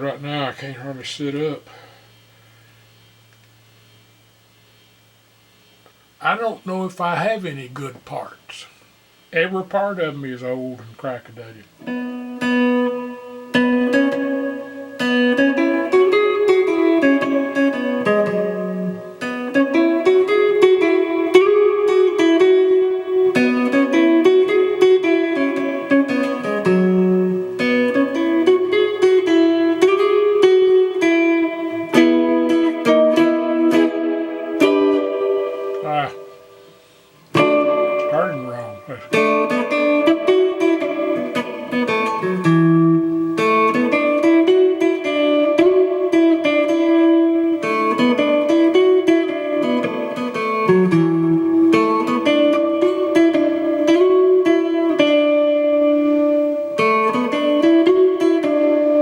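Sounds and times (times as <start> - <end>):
electric guitar slow melody: 11.6 - 59.0.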